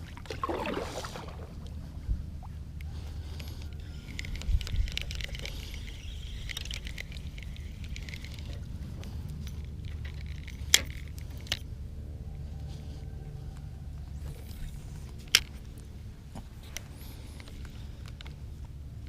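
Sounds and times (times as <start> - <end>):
steady low rumble: 0.0 - 19.0
light ticks and rattles: 2.8 - 11.8.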